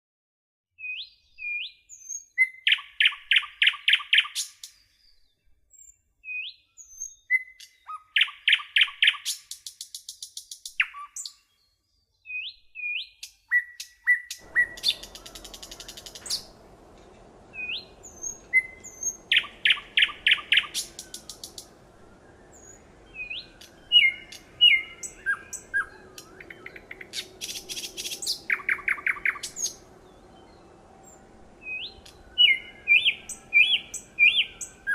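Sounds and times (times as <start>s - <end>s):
songbird whistling and chirping: 0.8s - 34.9s
faint background hiss: 14.4s - 34.9s.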